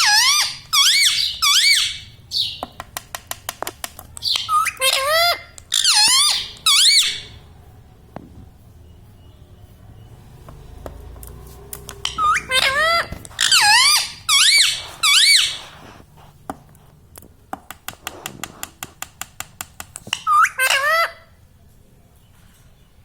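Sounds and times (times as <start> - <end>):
parrot squawking: 0.0 - 2.6, 4.2 - 7.4, 12.0 - 15.8, 20.1 - 21.4
parrot clicking: 2.6 - 4.7, 17.5 - 20.5.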